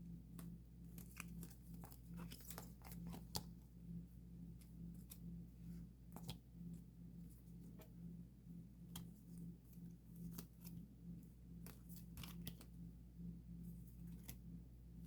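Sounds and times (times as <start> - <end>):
hands handling plastic sleeves: 0.2 - 3.6.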